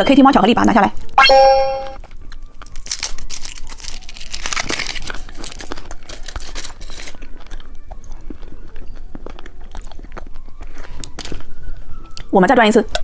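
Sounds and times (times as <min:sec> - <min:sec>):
candy wrapper crinkling: 0:02.0 - 0:11.6.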